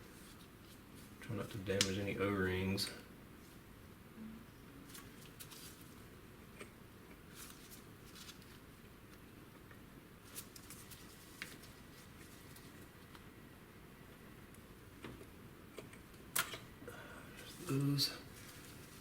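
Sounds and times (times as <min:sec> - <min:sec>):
low room hiss: 0:00.0 - 0:19.0.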